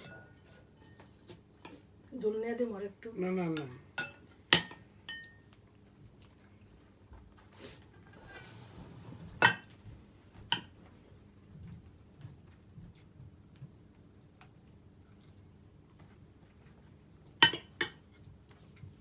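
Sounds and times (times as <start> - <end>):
spoon and dishes clinking: 0.0 - 1.8, 3.6 - 5.5, 9.4 - 9.8, 17.4 - 18.1.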